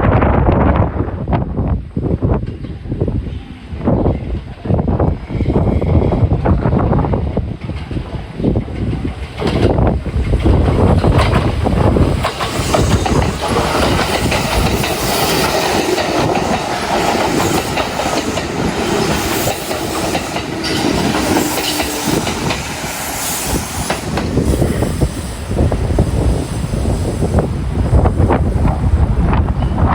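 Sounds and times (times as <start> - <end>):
train wheels clacking over rail joints: 7.6 - 25.0.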